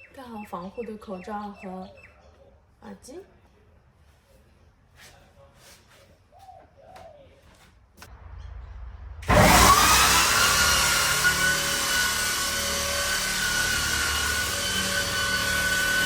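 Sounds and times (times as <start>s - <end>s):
electric sander motor whine: 9.2s - 16.0s.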